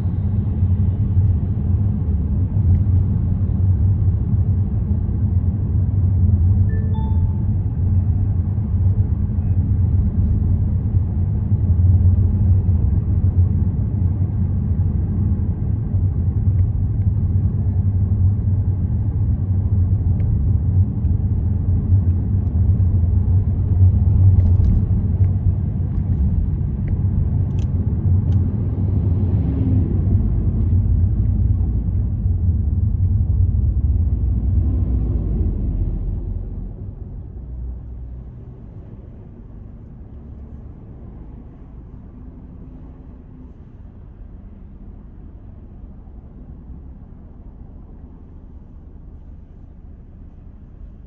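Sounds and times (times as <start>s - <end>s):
car engine and tyres rumbling: 0.0s - 51.0s.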